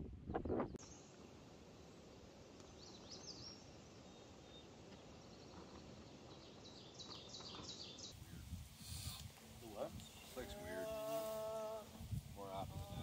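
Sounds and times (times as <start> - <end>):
faint outdoor ambience: 0.0 - 13.0
small bird chirping: 2.5 - 9.2.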